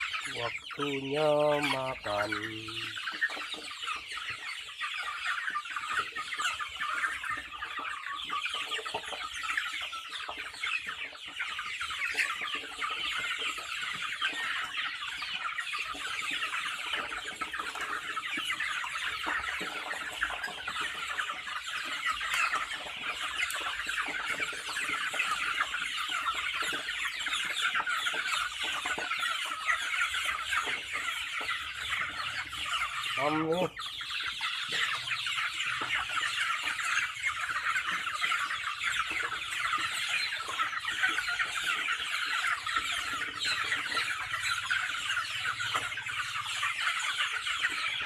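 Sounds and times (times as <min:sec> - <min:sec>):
chickens clucking and chirping: 0:00.0 - 0:48.0.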